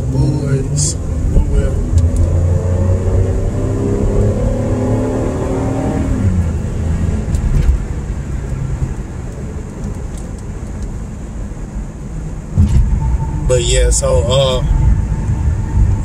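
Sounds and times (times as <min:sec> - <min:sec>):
car engine revving: 0:00.0 - 0:09.3
road rumble: 0:00.0 - 0:16.0.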